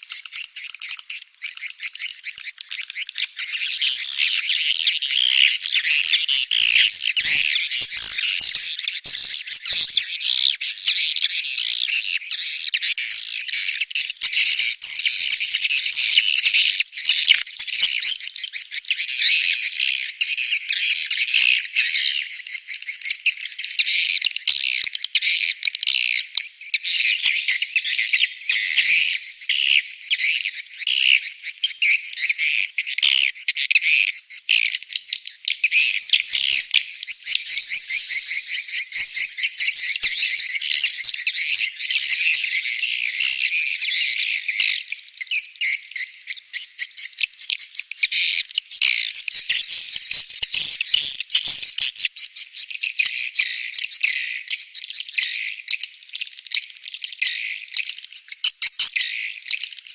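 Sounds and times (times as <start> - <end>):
swiftlets chirping: 6.6 - 10.1, 15.2 - 15.7, 28.7 - 29.2, 35.7 - 40.6, 49.3 - 51.8.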